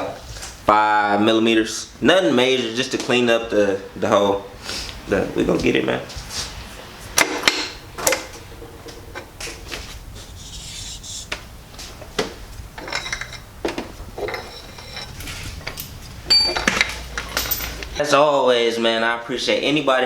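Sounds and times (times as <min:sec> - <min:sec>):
metallic clinks and knocks: 0:12.8 - 0:18.0.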